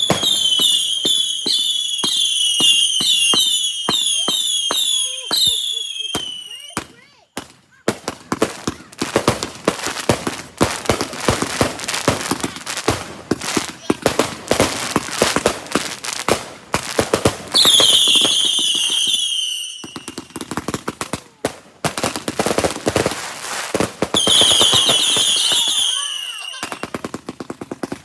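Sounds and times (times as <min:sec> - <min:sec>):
shrill firework whistle: 0:00.0 - 0:06.8, 0:17.5 - 0:20.5, 0:24.2 - 0:27.0
firework cracks and pops: 0:00.0 - 0:28.0.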